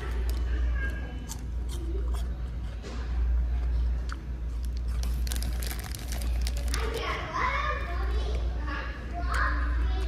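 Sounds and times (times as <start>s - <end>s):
chewing crisp apple: 0.0s - 7.1s
steady low hum: 0.0s - 10.0s
plastic packet crinkling: 4.7s - 7.2s.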